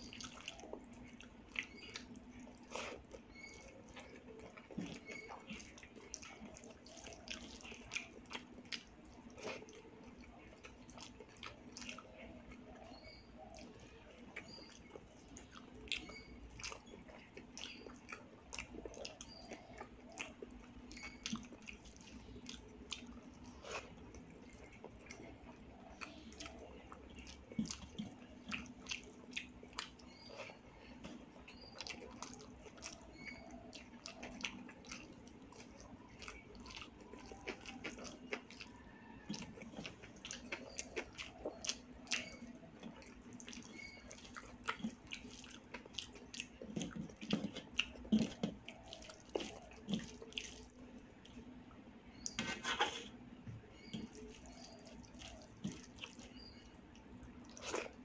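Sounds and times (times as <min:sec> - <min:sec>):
wet chewing and mouth smacks: 0:00.0 - 0:52.4, 0:53.1 - 0:58.0.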